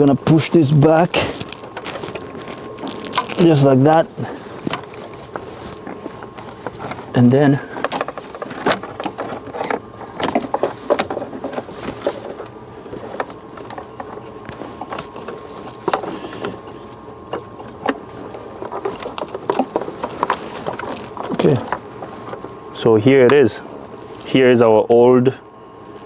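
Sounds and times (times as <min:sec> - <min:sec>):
plastic parts clicking and rattling: 0:01.1 - 0:22.6.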